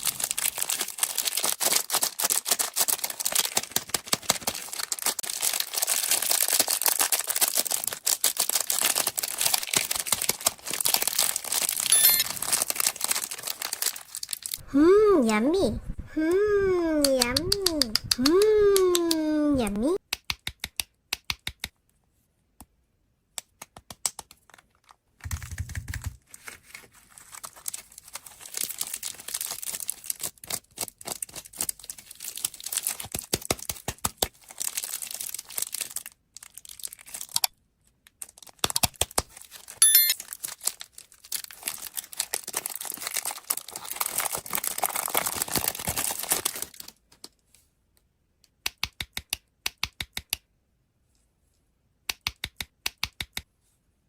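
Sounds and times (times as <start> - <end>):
plastic wrappers crackling: 0.0 - 14.6, 26.6 - 33.2, 34.2 - 37.5, 39.2 - 47.3.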